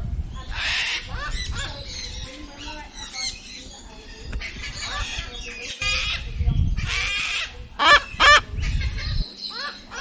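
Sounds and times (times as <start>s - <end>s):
cockatoo screeching: 6.9s - 8.5s.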